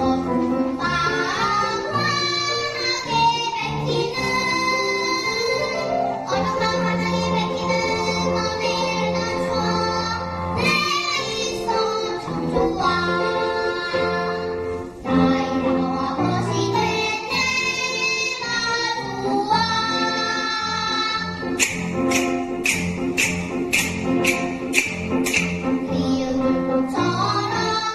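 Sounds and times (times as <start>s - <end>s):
child singing: 0.0s - 21.6s, 25.8s - 27.9s
instrumental accompaniment: 0.0s - 27.9s
sharp percussion strikes: 21.5s - 25.8s.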